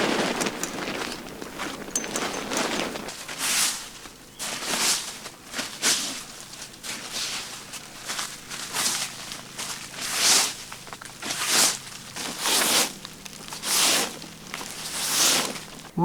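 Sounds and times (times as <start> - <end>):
rustling and scuffing: 0.0 - 16.0.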